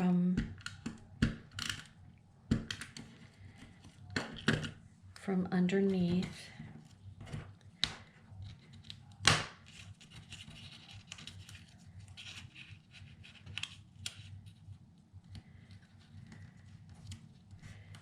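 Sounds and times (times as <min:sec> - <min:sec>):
paper rustling and scraping: 0:09.6 - 0:14.7.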